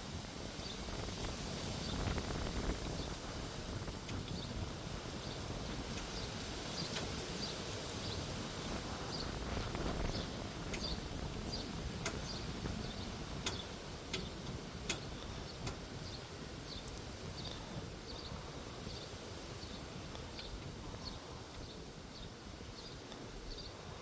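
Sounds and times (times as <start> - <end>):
wind rumble on microphone: 0.0 - 24.0
sharp clicks: 16.8 - 17.1.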